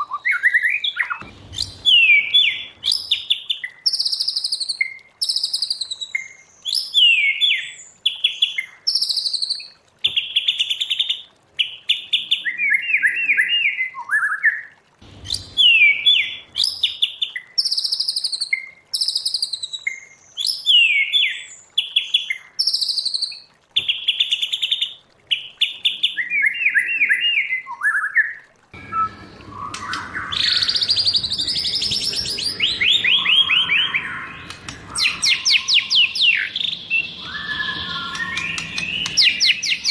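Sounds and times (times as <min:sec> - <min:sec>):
bird singing whistles and trills: 0:00.0 - 0:10.5, 0:11.6 - 0:21.6, 0:26.1 - 0:39.9
bird song rapid repeated notes: 0:00.0 - 0:10.6, 0:15.0 - 0:21.4, 0:28.8 - 0:39.9
background hiss: 0:00.2 - 0:09.7
low hum: 0:01.2 - 0:03.0, 0:15.0 - 0:16.6, 0:28.8 - 0:39.9.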